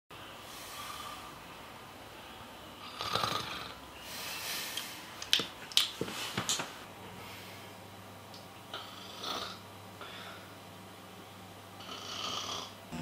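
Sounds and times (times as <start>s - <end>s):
person snoring: 11.8s - 13.0s.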